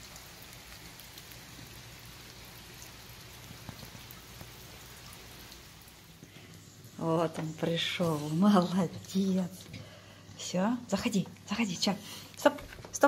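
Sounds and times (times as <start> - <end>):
steady rain on paving: 0.0 - 6.8.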